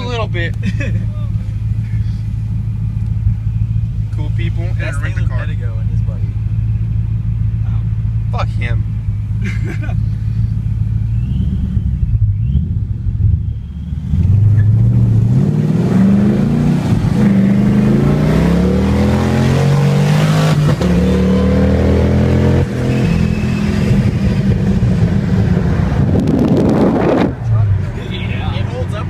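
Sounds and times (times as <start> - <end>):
car engine accelerating through gears: 10.0 - 27.9.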